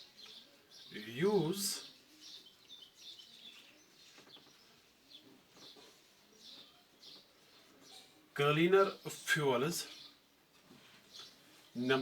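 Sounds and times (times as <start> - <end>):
faint bird chirps: 0.0 - 8.3.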